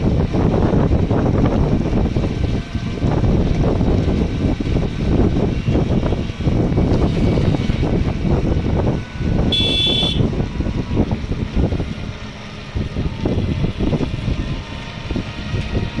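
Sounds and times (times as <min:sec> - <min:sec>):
vehicle engine rumble: 0:00.0 - 0:16.0
wind buffeting microphone: 0:00.0 - 0:16.0
short high beep: 0:09.5 - 0:10.2.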